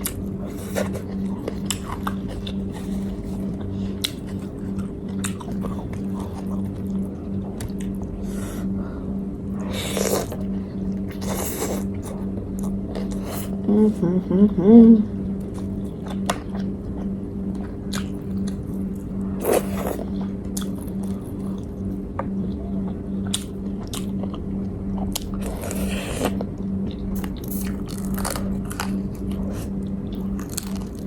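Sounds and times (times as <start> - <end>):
biting and chewing food: 0.0 - 8.2, 15.4 - 31.0
steady low hum: 0.0 - 31.0.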